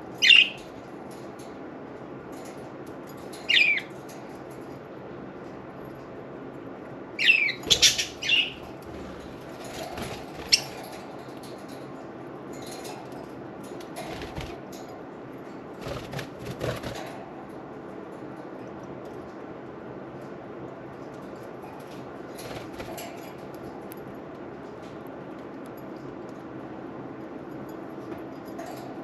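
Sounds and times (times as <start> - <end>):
birds chirping: 0.1 - 0.7, 3.4 - 4.0, 7.2 - 11.0
wings flapping and splashing: 9.2 - 10.9.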